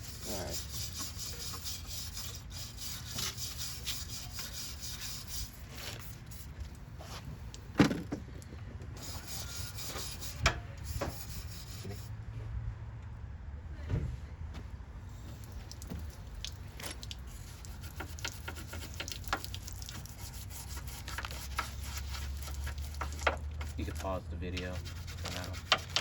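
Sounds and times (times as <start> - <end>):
wire brush scrubbing metal: 0.0 - 6.4, 9.0 - 12.1, 16.9 - 26.0.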